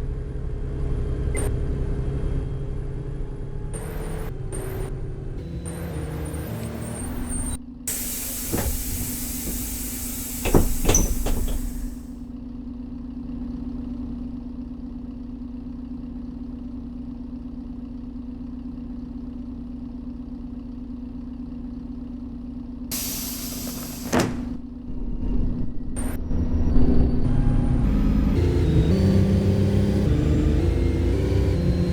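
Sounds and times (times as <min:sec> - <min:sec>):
bus engine idling: 0:00.0 - 0:12.2, 0:22.9 - 0:26.4, 0:27.3 - 0:31.9
pneumatic doors hissing: 0:06.6 - 0:12.2, 0:22.9 - 0:24.8.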